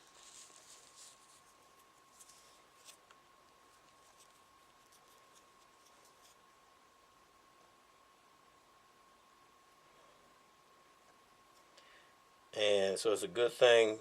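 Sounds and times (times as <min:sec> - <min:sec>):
faint rustling: 0:00.0 - 0:06.7
faint steady high whine: 0:00.0 - 0:14.0.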